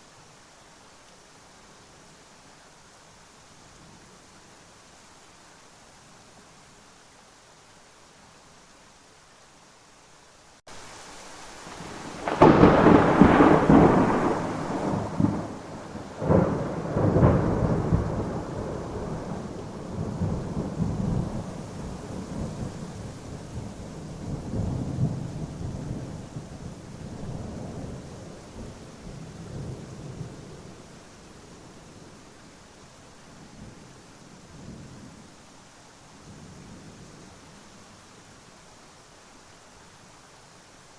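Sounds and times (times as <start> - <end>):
rain hissing: 0.0 - 40.9
thunder cracking and rumbling: 11.8 - 30.5.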